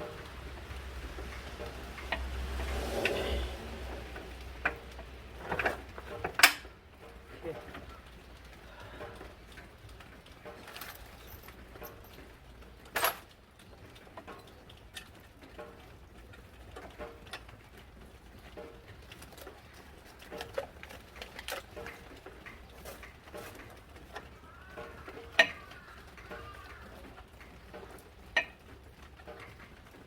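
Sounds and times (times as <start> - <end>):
birds cooing: 24.0 - 27.3.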